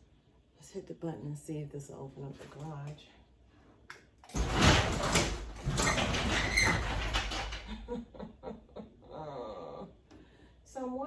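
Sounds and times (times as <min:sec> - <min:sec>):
garage door opener running: 0:04.3 - 0:07.9
garage door rattling and grinding: 0:04.3 - 0:08.1.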